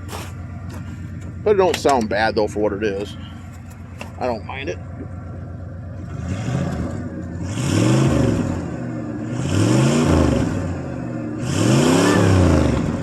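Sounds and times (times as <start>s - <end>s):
engine exhaust revving: 5.8s - 13.0s.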